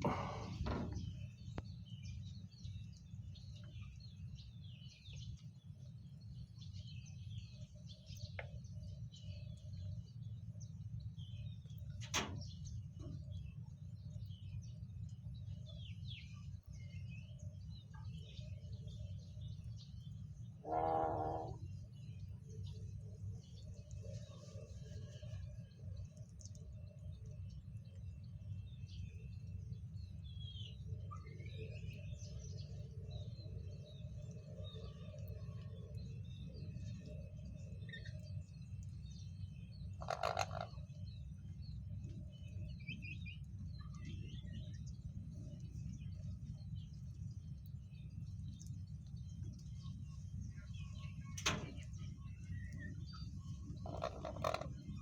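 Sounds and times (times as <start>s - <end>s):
birds chirping: 0.0s - 5.7s, 15.5s - 28.0s, 28.6s - 55.0s
loud bird call: 20.6s - 21.6s.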